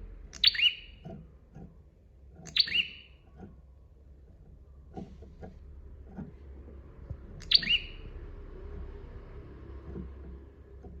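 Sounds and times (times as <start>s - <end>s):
low steady rumble: 0.0s - 11.0s
faint low chirps: 7.1s - 8.8s.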